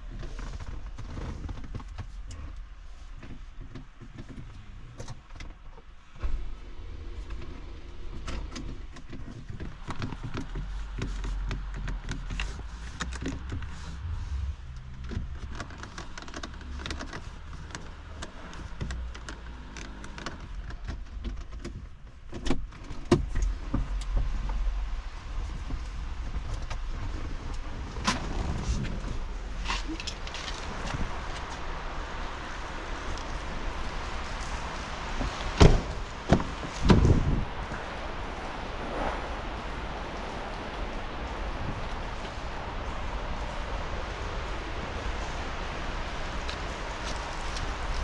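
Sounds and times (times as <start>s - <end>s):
clicks and knocks from car: 7.3s - 13.9s, 14.8s - 24.6s
low steady hum: 10.6s - 19.7s.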